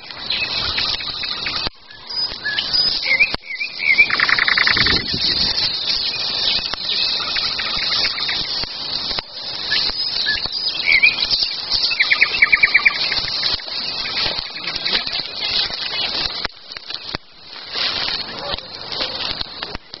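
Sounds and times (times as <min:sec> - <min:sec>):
birds singing: 0:00.0 - 0:20.0
bird trill: 0:00.2 - 0:08.6, 0:09.3 - 0:16.2.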